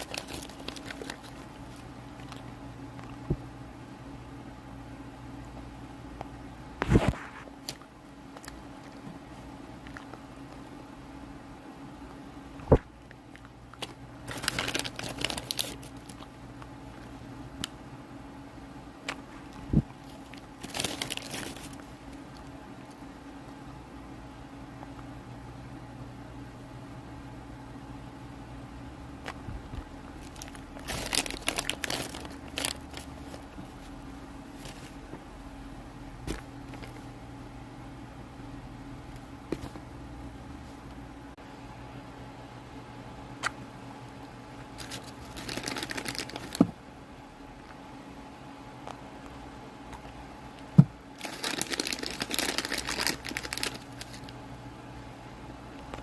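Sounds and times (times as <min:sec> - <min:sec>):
crunching food being chewed: 0:00.0 - 0:03.3, 0:09.8 - 0:10.6
crinkling and crackling: 0:00.0 - 0:03.4, 0:06.2 - 0:10.7, 0:12.7 - 0:17.8, 0:19.0 - 0:23.0, 0:29.2 - 0:35.3, 0:36.2 - 0:37.1, 0:44.8 - 0:46.7, 0:51.2 - 0:54.4
steady low hum: 0:00.0 - 0:56.0.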